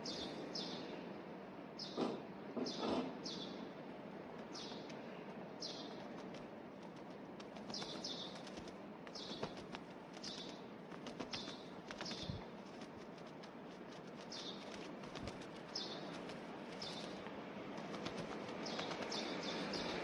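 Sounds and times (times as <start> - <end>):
bird chirping: 0.0 - 1.0, 1.8 - 3.7, 4.4 - 5.0, 5.6 - 12.8, 14.0 - 20.0
faint steady hiss: 3.3 - 20.0
light clicks: 4.3 - 5.4.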